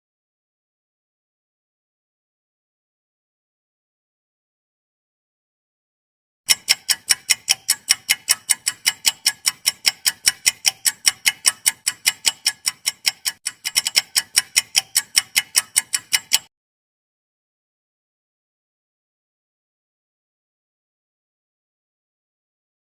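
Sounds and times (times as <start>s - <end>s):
clock ticking: 6.5s - 16.5s.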